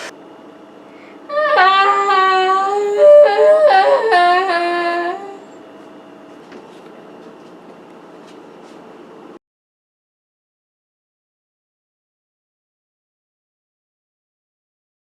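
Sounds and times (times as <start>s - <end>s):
faint steady hum: 0.0s - 9.4s.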